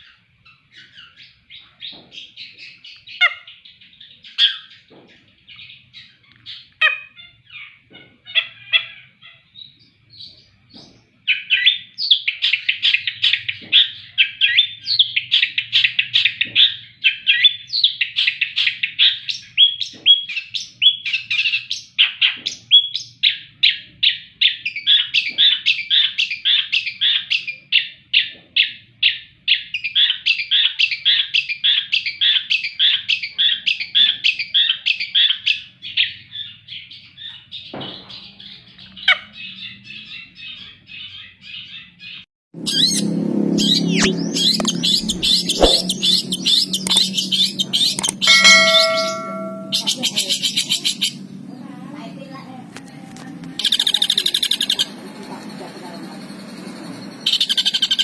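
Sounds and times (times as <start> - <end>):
shrike singing chattering notes: 43.7 - 50.6.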